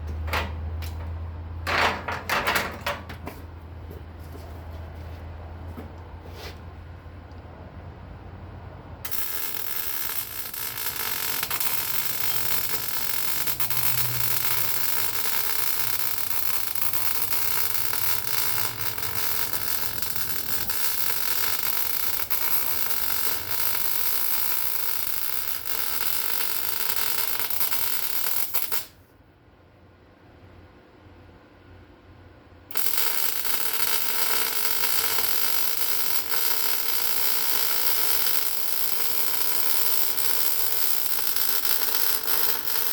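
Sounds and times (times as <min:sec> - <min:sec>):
welding arc crackling hiss: 0:09.1 - 0:29.0, 0:32.7 - 0:42.9.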